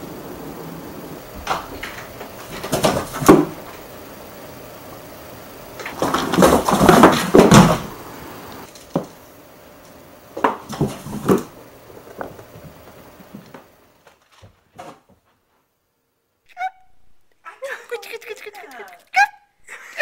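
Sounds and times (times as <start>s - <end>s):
cat thumping in cardboard box: 6.0s - 7.9s, 10.4s - 12.8s.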